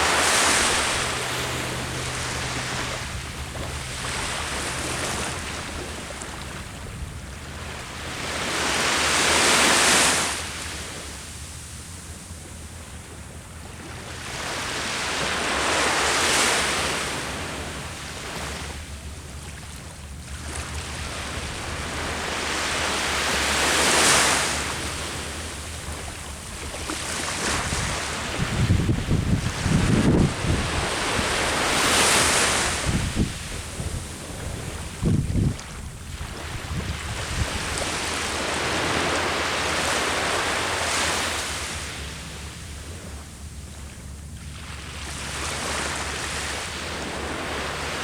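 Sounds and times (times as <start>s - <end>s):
ocean waves crashing: 0.0s - 11.5s, 20.4s - 42.5s
wind rumbling on microphone: 0.0s - 48.0s.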